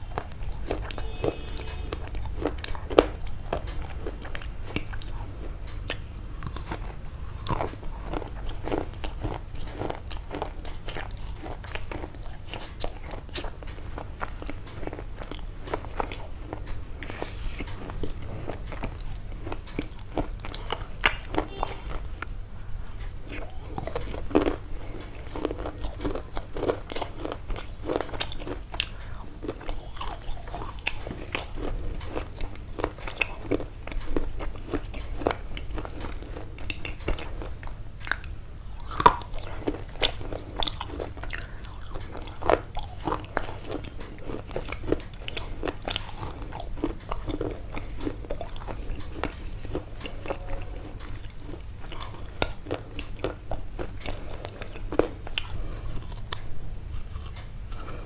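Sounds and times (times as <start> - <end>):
crunching and chewing: 0.0 - 58.0
steady low hum: 0.0 - 58.0.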